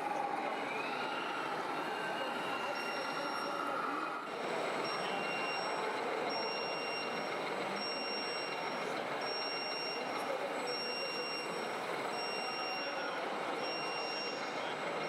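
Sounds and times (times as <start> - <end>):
constant background noise: 0.0 - 15.0
reversing warning beeper: 2.1 - 3.8, 4.8 - 15.0.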